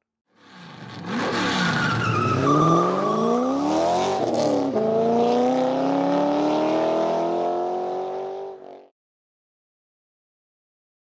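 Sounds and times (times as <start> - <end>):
car engine accelerating hard: 0.7 - 8.8.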